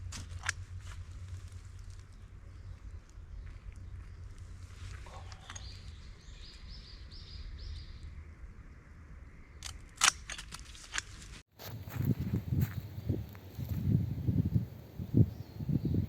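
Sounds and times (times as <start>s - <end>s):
steady low rumble: 0.0s - 10.3s, 11.1s - 16.0s
sharp clicks: 9.6s - 11.2s.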